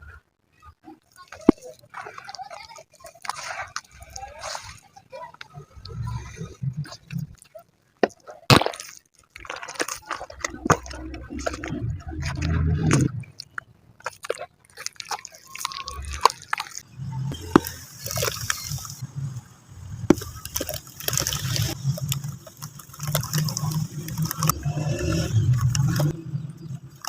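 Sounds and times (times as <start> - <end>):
crumbly material crushed in water: 6.9 - 19.0, 19.8 - 27.0
sharp cracks: 8.0 - 16.8
water trickling and sloshing: 9.0 - 27.0.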